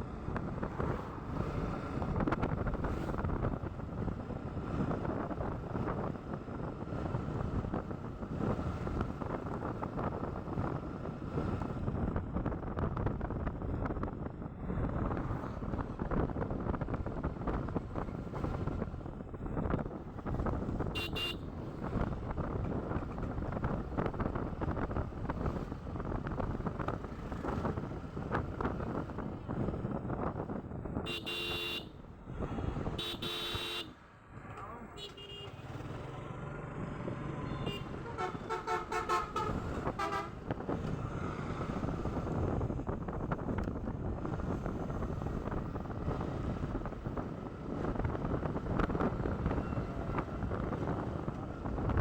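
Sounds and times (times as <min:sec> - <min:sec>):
wind buffeting microphone: 0:00.0 - 0:31.1, 0:38.4 - 0:52.0
road noise: 0:00.0 - 0:52.0
horn tooting: 0:20.9 - 0:21.4, 0:31.0 - 0:32.0, 0:32.9 - 0:34.0, 0:34.9 - 0:35.7, 0:37.4 - 0:40.5.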